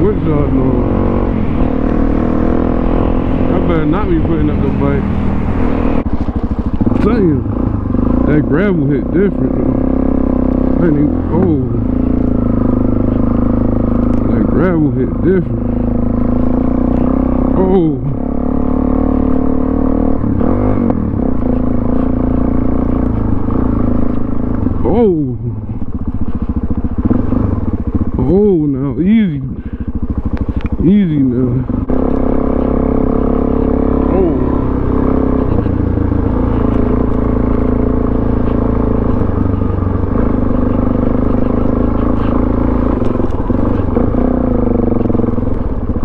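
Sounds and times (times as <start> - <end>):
motorcycle engine running: 0.0 - 46.0
tyres on gravel: 20.2 - 46.0.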